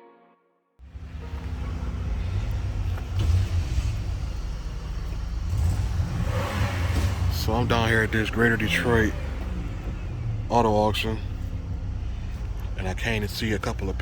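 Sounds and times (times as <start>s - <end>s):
soft music: 0.0s - 2.8s
motor vehicle low rumble: 0.8s - 14.0s.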